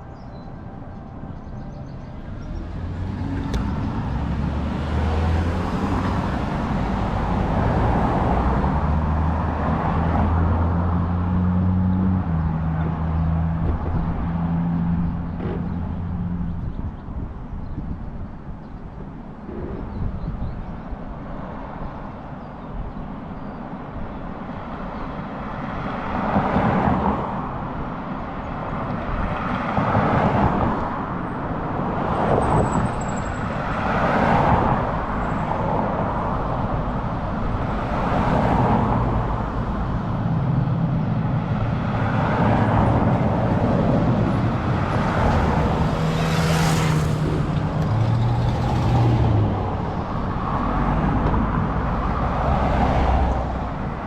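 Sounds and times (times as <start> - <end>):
vehicles passing: 0.0 - 54.0
heavy vehicle engine hum: 27.3 - 54.0.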